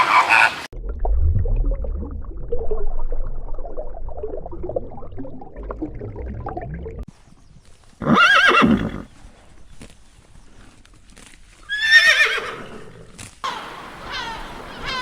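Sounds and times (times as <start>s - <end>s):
horse whinnying: 8.0s - 9.1s, 11.7s - 13.1s.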